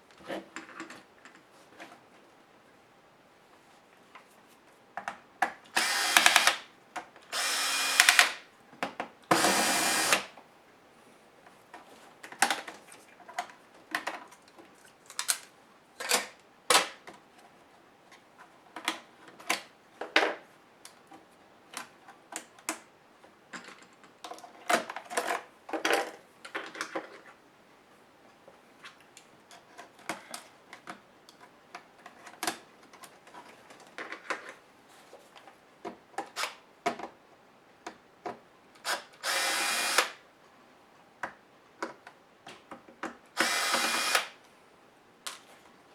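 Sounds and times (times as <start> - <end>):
power screwdriver whirring: 5.8 - 6.6, 7.4 - 8.4, 9.3 - 10.3, 39.2 - 40.2, 43.4 - 44.4.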